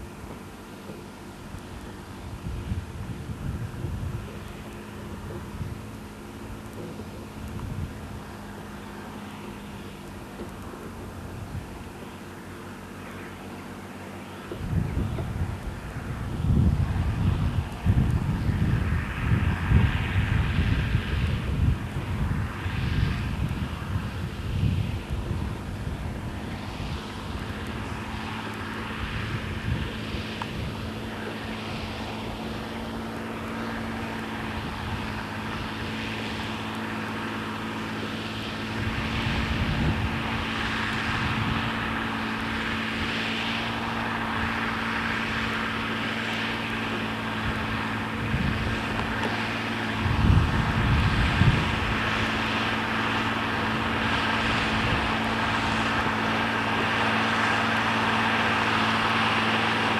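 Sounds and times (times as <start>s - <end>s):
tractor diesel engine drone: 0.0s - 59.9s.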